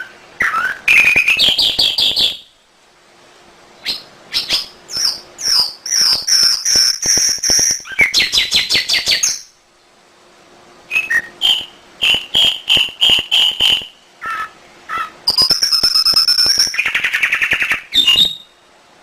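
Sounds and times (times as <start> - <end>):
canary singing: 0.0 - 2.6, 3.8 - 9.6, 10.9 - 18.7.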